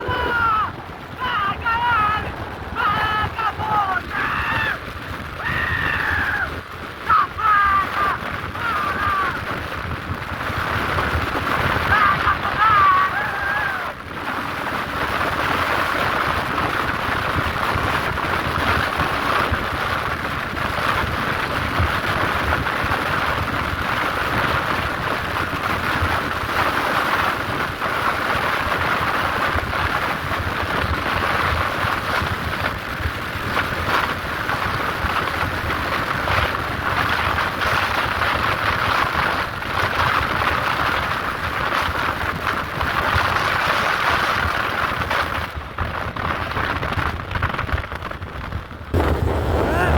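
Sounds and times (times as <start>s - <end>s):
road noise: 0.0s - 5.4s, 48.8s - 49.9s
wind rushing over microphone: 0.0s - 49.9s.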